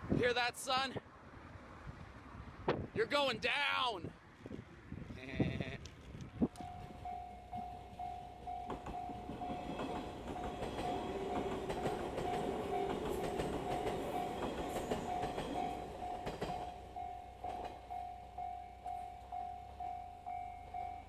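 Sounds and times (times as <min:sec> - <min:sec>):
train rumble: 0:06.5 - 0:21.0
level crossing warning bell: 0:06.6 - 0:21.0.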